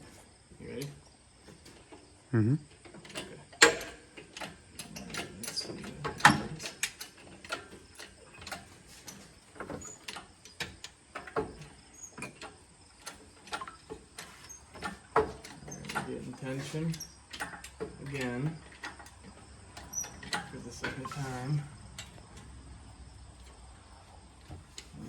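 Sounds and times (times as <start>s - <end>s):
lifting gear clicking and clanking: 0.0s - 25.0s.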